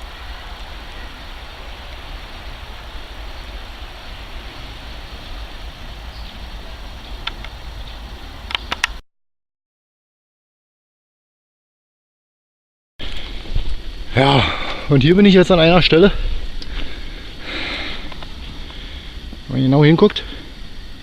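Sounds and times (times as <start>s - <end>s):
outdoor rumble and hiss: 0.0s - 9.0s, 13.0s - 21.0s
sharp clicks: 7.2s - 7.6s, 8.4s - 9.0s.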